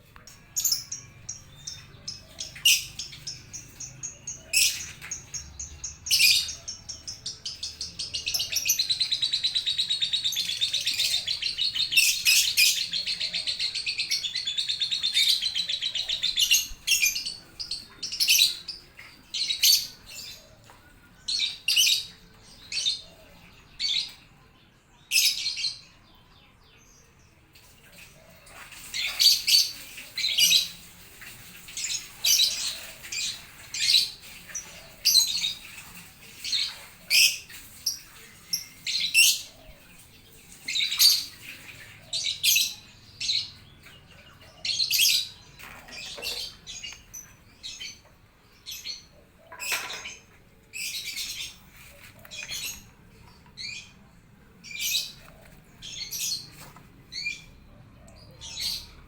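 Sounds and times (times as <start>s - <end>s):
birds chirping: 0.0s - 26.0s, 27.0s - 59.0s.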